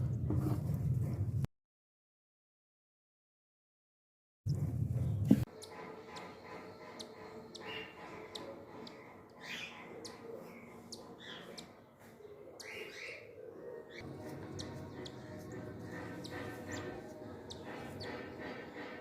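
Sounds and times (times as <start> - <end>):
bird chick raspy calls: 5.5 - 19.0.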